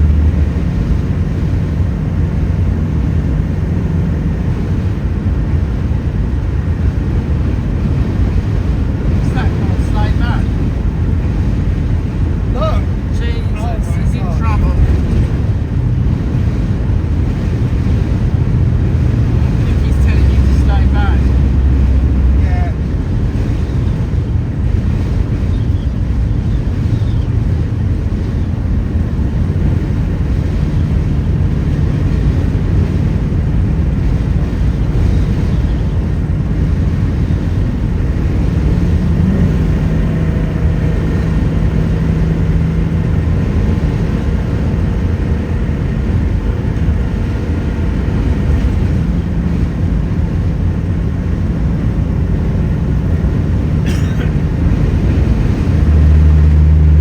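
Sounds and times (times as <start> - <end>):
faint engine drone: 0.0 - 57.0
large vehicle road rumble: 0.0 - 57.0.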